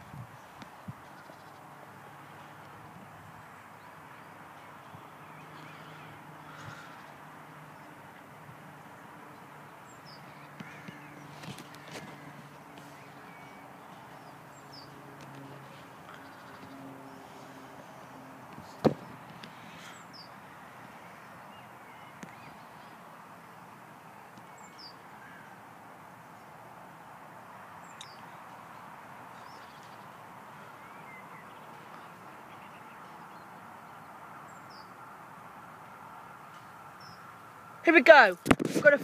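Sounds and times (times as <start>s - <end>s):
sharp knock: 18.8s - 19.2s.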